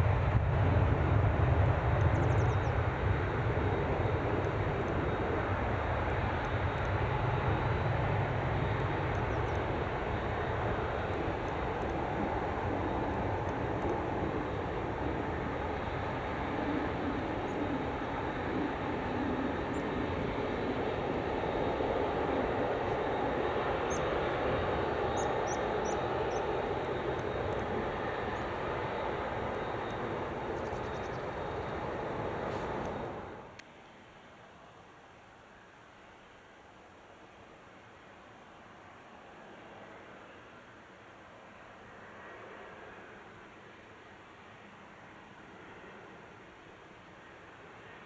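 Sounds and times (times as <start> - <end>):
jet engines running loudly: 0.0 - 33.6.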